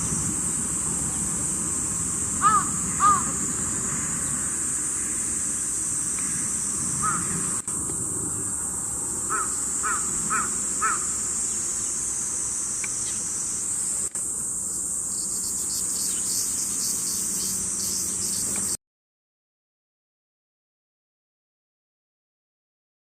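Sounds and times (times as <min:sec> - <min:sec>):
high-pitched insect chorus: 0:00.0 - 0:18.8
crow cawing: 0:02.4 - 0:04.3, 0:07.0 - 0:07.6, 0:09.3 - 0:11.2.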